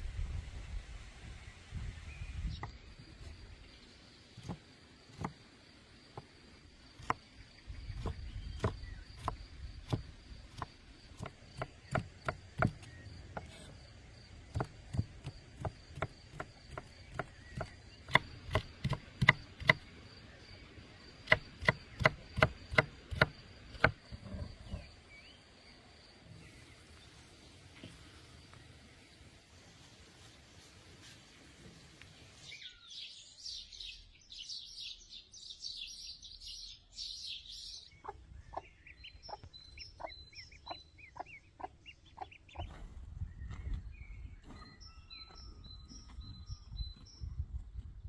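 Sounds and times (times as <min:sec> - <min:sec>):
knife chopping on wooden board: 0:04.4 - 0:05.4, 0:08.0 - 0:13.6, 0:14.5 - 0:19.8, 0:21.2 - 0:24.9.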